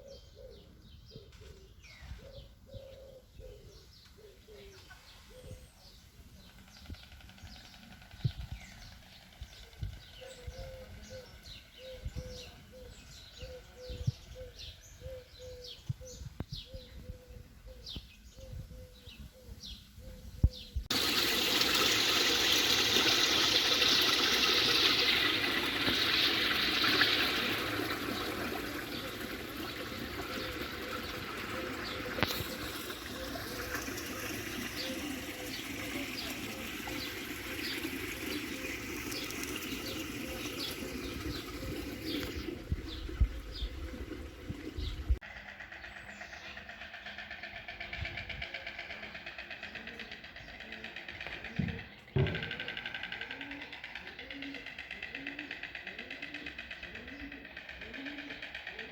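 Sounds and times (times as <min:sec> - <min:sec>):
small birds chirping: 0:00.0 - 0:20.9, 0:23.2 - 0:58.9
running water: 0:20.9 - 0:45.2.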